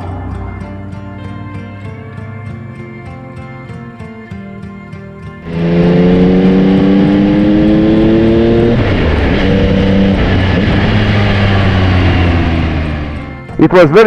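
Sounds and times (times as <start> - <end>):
motorcycle engine accelerating: 5.4 - 13.6.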